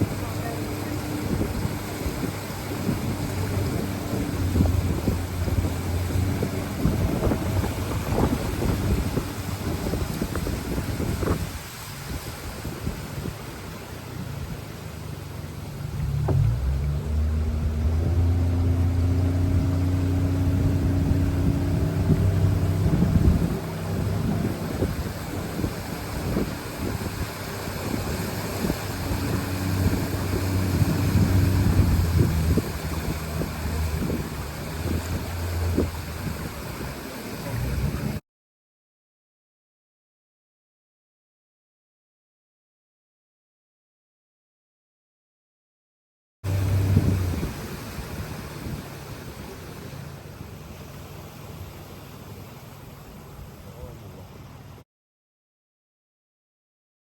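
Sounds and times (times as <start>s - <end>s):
boat motor humming: 0.0s - 11.6s, 12.9s - 38.2s, 46.5s - 54.6s
rushing water: 0.0s - 38.2s, 46.5s - 54.8s
wind buffeting microphone: 0.0s - 38.2s, 46.5s - 49.6s.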